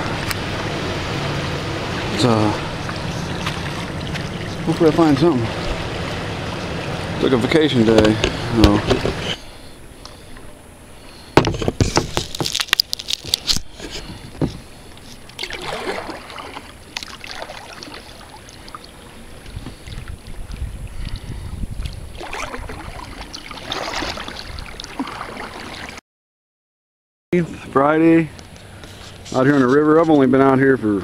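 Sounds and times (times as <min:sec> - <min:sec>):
paddle strokes swishing through water: 0:00.0 - 0:12.5, 0:13.7 - 0:26.0
sharp knocks: 0:08.0 - 0:09.3, 0:11.4 - 0:12.4.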